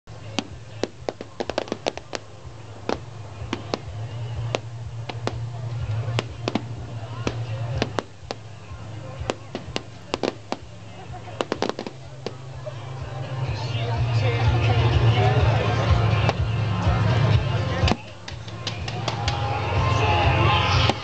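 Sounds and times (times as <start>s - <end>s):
low rumble: 0.1s - 21.0s
fireworks cracks and bangs: 0.2s - 12.6s, 16.2s - 16.6s, 17.8s - 19.9s, 20.6s - 21.0s.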